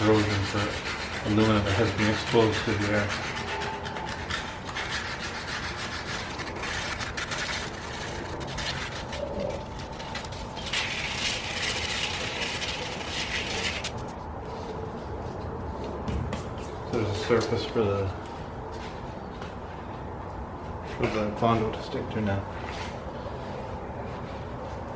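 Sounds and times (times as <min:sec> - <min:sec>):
sandpaper rubbing on metal: 0:00.0 - 0:14.1.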